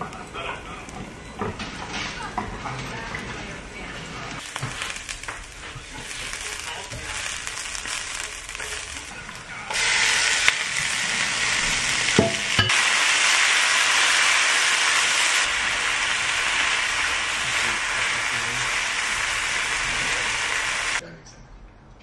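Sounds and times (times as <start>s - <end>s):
meat and onions sizzling in a pan: 4.4s - 21.0s
spatula stir-frying: 4.4s - 21.0s.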